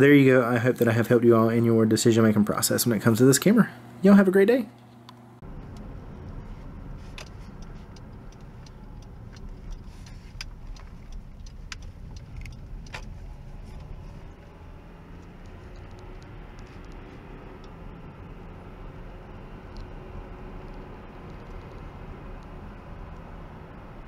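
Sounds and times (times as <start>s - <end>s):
road rumble inside car: 5.4s - 24.0s
sharp clicks and ticks: 5.6s - 23.3s.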